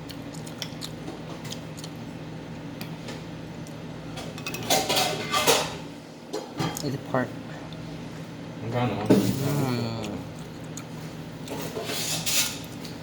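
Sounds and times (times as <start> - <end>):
steady low hum: 0.0 - 13.0
cutlery clinking against plate: 4.2 - 6.8
cutlery clatter: 4.4 - 5.8.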